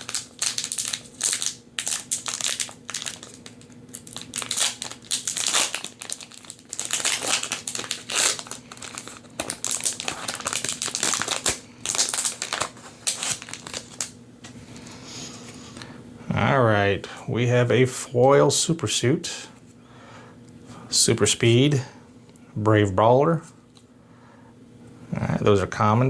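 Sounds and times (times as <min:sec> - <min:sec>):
foil wrapper crinkling: 0:00.0 - 0:14.9.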